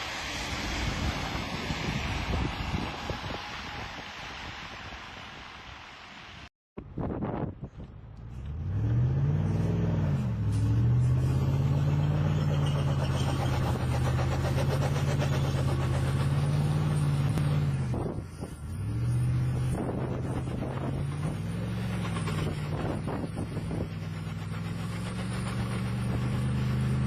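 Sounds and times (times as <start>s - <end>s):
vehicle engine revving: 8.3s - 27.0s.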